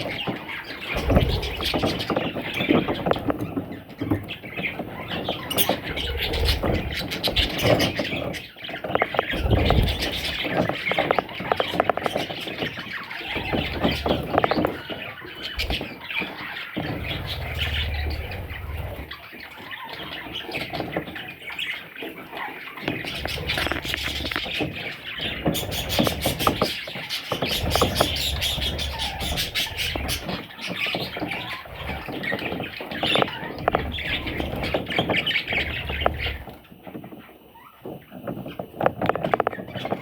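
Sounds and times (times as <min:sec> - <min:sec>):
budgerigars chattering: 0:00.0 - 0:36.7
low rumbling: 0:16.9 - 0:19.2.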